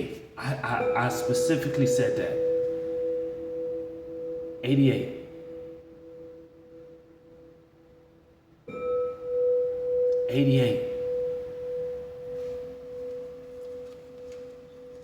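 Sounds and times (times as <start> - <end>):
bell-like ringing tones: 0.0 - 15.0.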